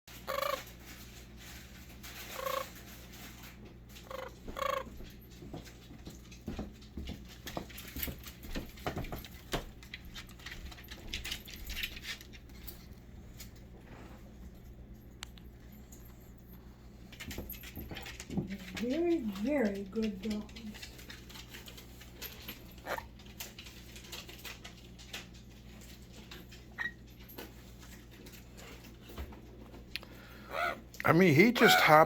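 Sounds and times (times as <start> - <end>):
bird calls: 30.5 - 30.8.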